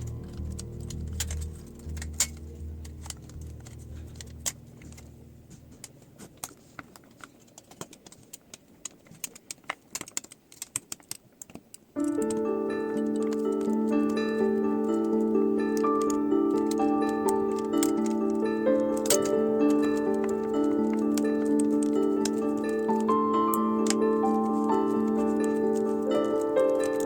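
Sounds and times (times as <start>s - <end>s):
small metal parts clicking: 0.0s - 5.1s, 6.4s - 27.0s
background music: 0.0s - 6.5s, 12.0s - 27.0s.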